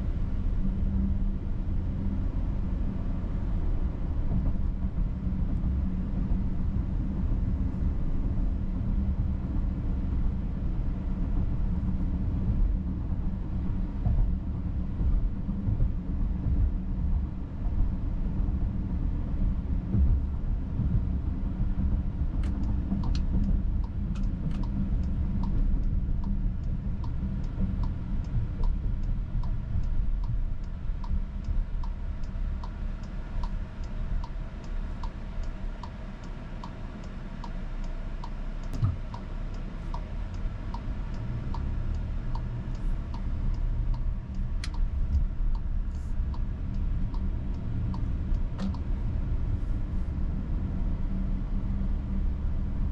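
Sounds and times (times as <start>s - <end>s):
road and engine rumble: 0.0s - 52.9s
turn signal ticking: 19.8s - 49.6s.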